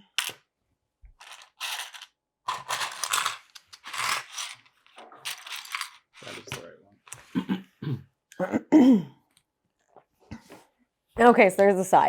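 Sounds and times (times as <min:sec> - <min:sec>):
plastic pieces rattling and clicking: 0:00.1 - 0:00.4, 0:01.2 - 0:06.6.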